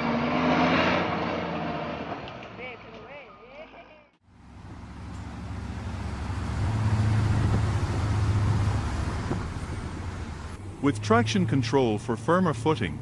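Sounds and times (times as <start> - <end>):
diesel engine running under load: 4.2 - 13.0.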